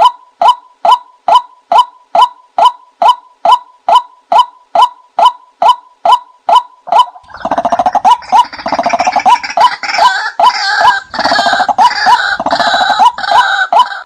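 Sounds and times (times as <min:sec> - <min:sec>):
rapid gurgling bird chatter: 0:07.1 - 0:13.9.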